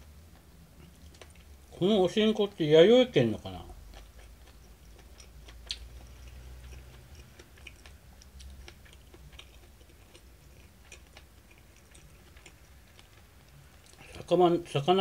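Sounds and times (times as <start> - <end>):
person chewing food: 0.1 - 1.7, 3.4 - 14.3
mouth clicks and smacks: 0.3 - 1.6, 3.7 - 14.3.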